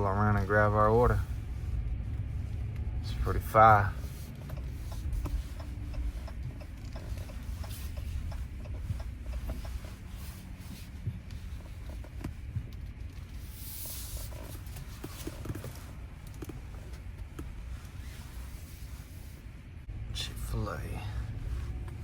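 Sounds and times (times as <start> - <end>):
pickup truck engine rumble: 0.0 - 22.0.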